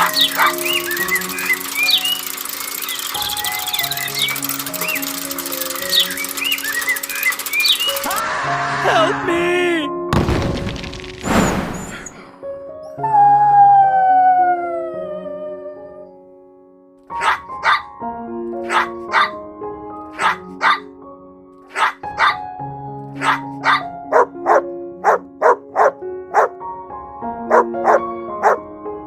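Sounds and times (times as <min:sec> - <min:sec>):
dog barking: 0:00.0 - 0:00.7, 0:17.2 - 0:17.9, 0:18.6 - 0:19.4, 0:20.1 - 0:20.9, 0:21.7 - 0:22.4, 0:23.2 - 0:26.5, 0:27.5 - 0:28.6
background music of held notes: 0:00.0 - 0:10.4, 0:12.4 - 0:29.0.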